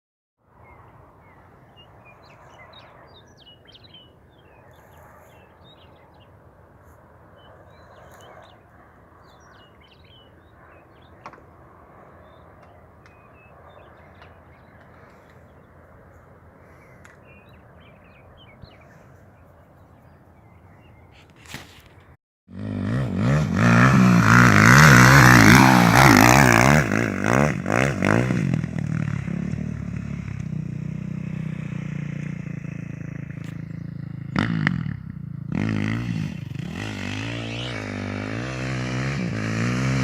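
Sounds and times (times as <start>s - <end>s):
birds calling and chirping: 0.6s - 22.1s.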